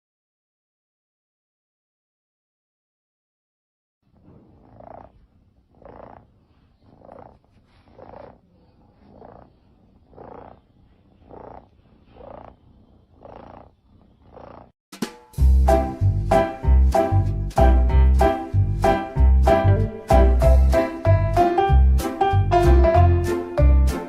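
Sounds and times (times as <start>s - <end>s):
cat purring: 4.1s - 14.8s
loud music: 15.4s - 24.0s.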